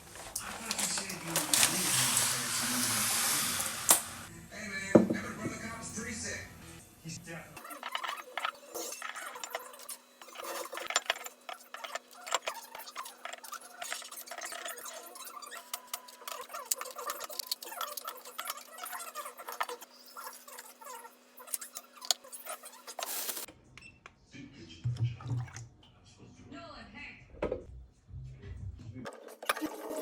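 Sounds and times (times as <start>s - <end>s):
containers clicking and clinking: 0.1s - 4.2s.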